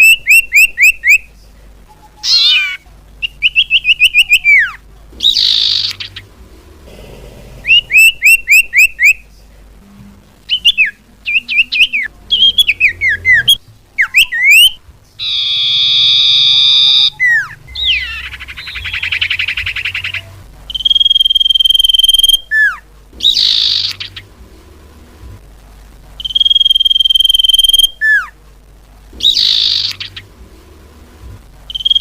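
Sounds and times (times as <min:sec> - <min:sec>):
bird calling: 0:01.9 - 0:09.3, 0:10.5 - 0:24.4, 0:29.2 - 0:30.4.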